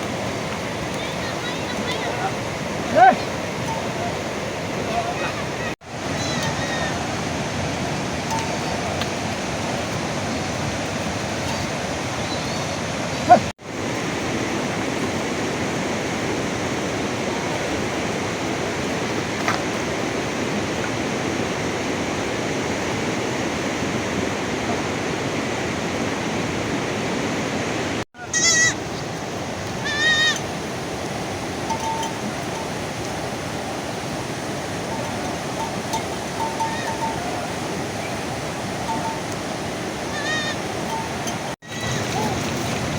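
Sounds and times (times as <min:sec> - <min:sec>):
heavy rain falling: 0:00.0 - 0:12.2
sheep or goat bleating: 0:04.9 - 0:07.0, 0:28.2 - 0:28.8, 0:29.8 - 0:30.4, 0:40.0 - 0:40.6, 0:41.6 - 0:42.4.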